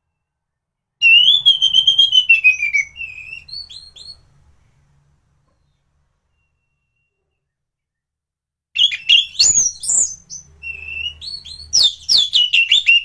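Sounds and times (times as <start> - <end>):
thrush singing whistled phrase: 1.0 - 4.2, 8.8 - 13.0.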